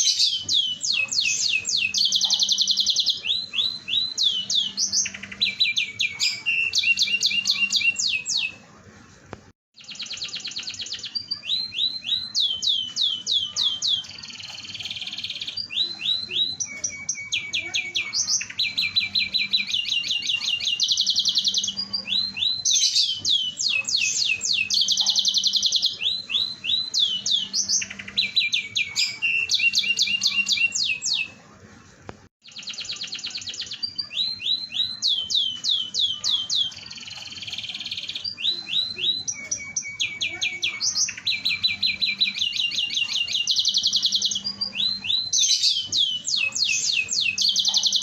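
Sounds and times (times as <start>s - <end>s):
canary singing trills: 0.0s - 8.6s, 9.8s - 31.4s, 32.4s - 48.0s.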